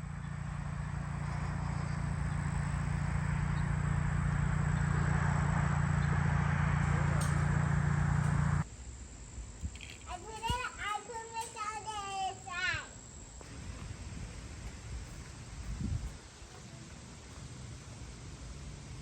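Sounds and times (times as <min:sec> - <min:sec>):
vehicle engine running: 0:00.0 - 0:08.7, 0:13.4 - 0:19.0.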